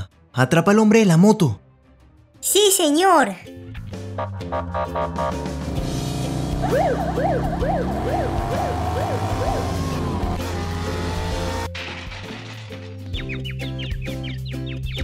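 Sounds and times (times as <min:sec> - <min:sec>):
police siren: 0:06.4 - 0:11.4.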